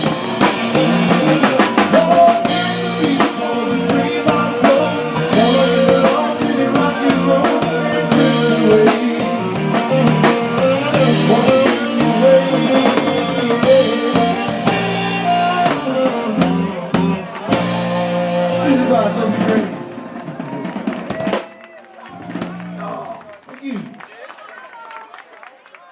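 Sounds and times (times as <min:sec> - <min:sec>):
melodic instruments: 0:00.0 - 0:20.2
drum kit steady beat: 0:00.0 - 0:21.6.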